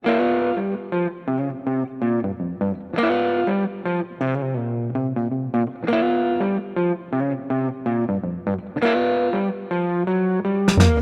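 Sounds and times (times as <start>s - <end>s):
distorted electric guitar riff: 0.0s - 11.0s
bass guitar: 10.7s - 11.0s.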